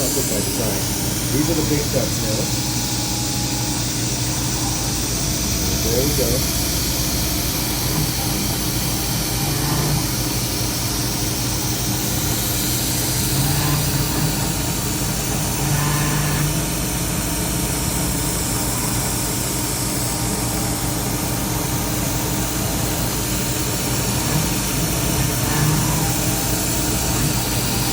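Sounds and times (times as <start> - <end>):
milling machine spindle running: 0.0 - 27.9.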